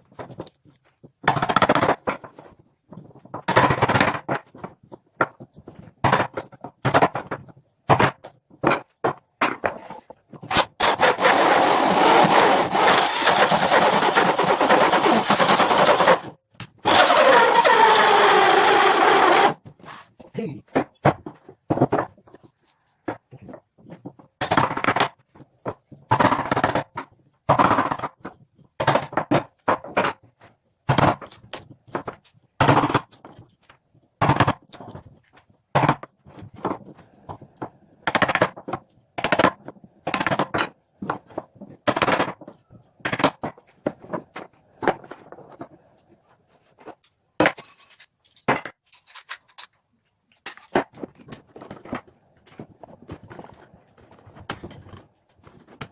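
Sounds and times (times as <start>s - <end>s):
hand tool strokes on wood: 10.8s - 20.0s.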